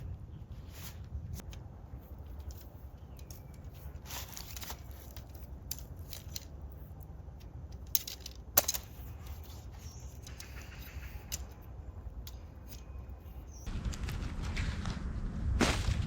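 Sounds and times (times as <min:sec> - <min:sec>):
low steady rumble: 0:00.0 - 0:16.0
rustling: 0:00.4 - 0:07.1.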